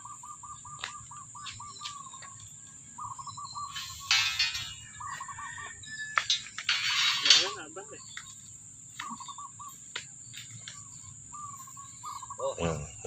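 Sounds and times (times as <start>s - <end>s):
loud scraping rustle: 3.7s - 5.0s, 6.2s - 7.7s.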